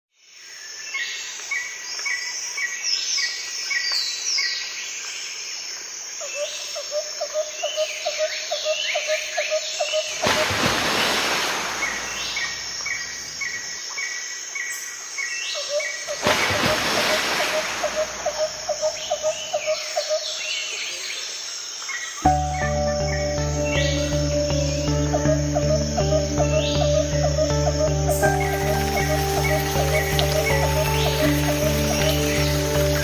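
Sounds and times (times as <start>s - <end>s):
bird repeating lower notes: 22.3s - 33.0s
birds chirping and whistling: 22.3s - 33.0s.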